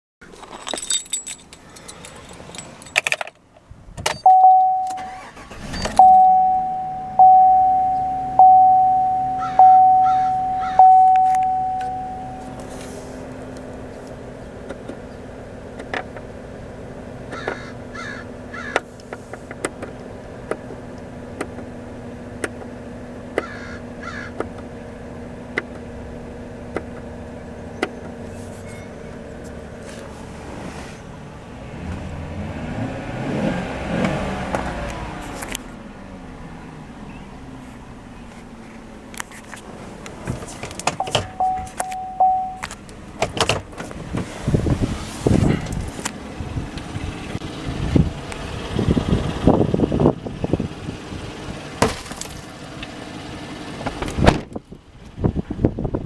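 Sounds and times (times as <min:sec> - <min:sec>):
truck engine cranking and idling: 0:00.2 - 0:56.0
keys jangling: 0:00.4 - 0:03.4
dashboard warning chime: 0:04.1 - 0:13.0, 0:41.0 - 0:42.7.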